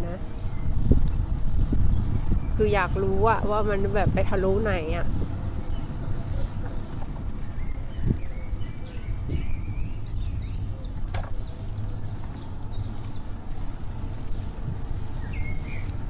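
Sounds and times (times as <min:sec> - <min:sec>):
songbirds chirping and trilling: 0:00.0 - 0:16.0
wind rumble on microphone: 0:00.0 - 0:16.0.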